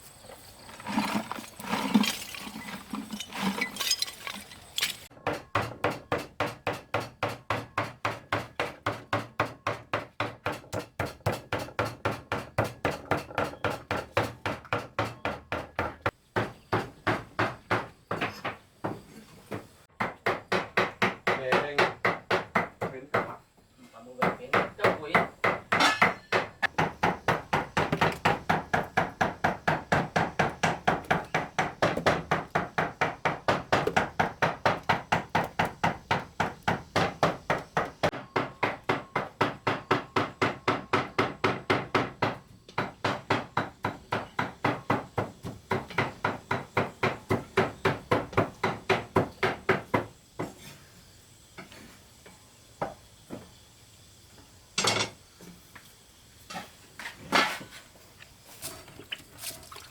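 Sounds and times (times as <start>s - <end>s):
tool striking wood: 24.2s - 50.5s.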